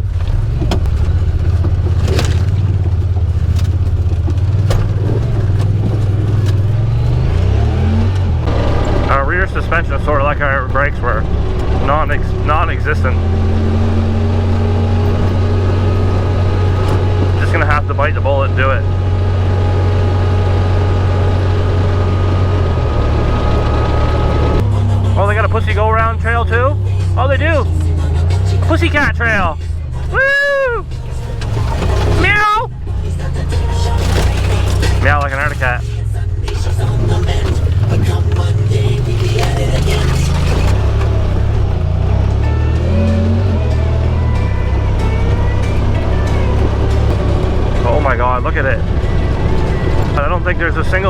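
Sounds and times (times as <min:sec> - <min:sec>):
vehicle knocks and clatters: 0:00.0 - 0:18.3, 0:30.8 - 0:51.0
utility vehicle engine running: 0:00.0 - 0:51.0.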